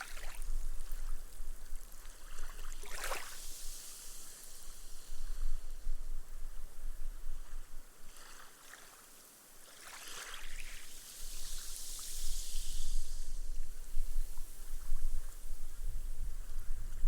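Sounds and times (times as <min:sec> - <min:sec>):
small waves washing on sand: 0:00.0 - 0:05.7, 0:08.0 - 0:14.9
wave splash: 0:02.2 - 0:04.9, 0:09.6 - 0:13.4
foam hissing: 0:10.8 - 0:14.4.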